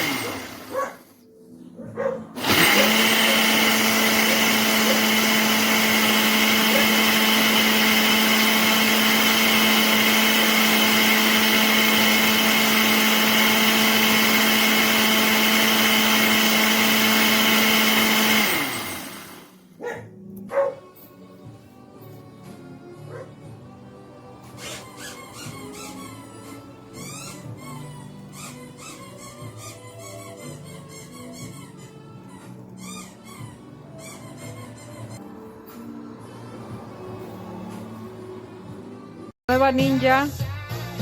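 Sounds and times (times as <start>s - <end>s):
blender motor running: 0.0s - 1.1s, 2.4s - 19.7s.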